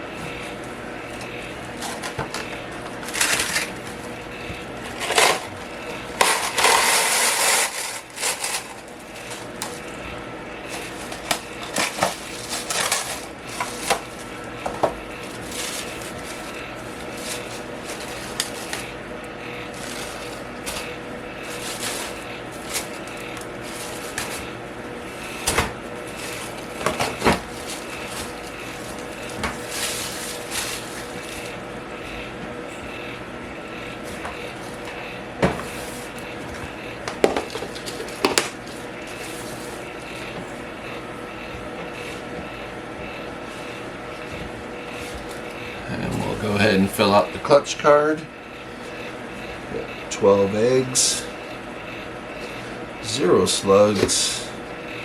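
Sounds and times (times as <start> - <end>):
rustling and crinkling: 0.0 - 10.0, 10.6 - 31.7, 33.9 - 40.6, 43.4 - 45.6
room fan humming: 0.0 - 55.0.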